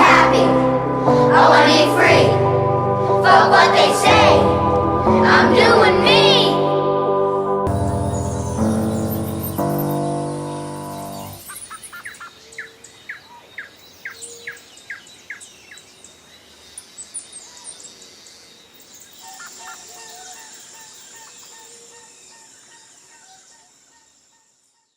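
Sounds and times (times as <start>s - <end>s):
repeated bird call: 7.7s - 15.8s
songbirds chirping: 7.7s - 24.9s
steady outdoor hiss: 7.7s - 24.9s.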